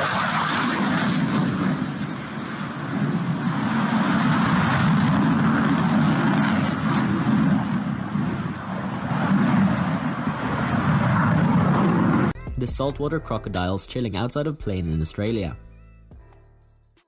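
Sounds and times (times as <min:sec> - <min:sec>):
fighter jet passing low: 0:00.0 - 0:12.4.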